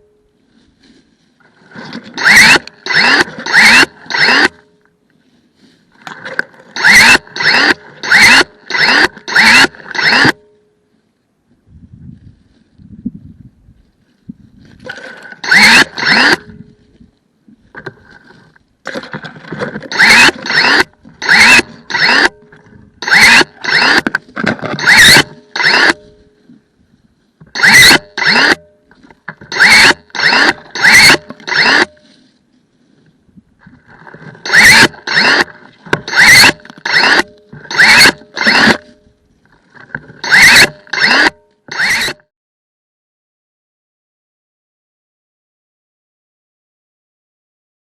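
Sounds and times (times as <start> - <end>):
electric pruning shears whirring: 1.9 - 4.7, 6.7 - 10.4, 15.4 - 16.6, 19.8 - 26.0, 27.6 - 28.7, 29.5 - 32.0, 34.4 - 39.0, 40.2 - 42.2.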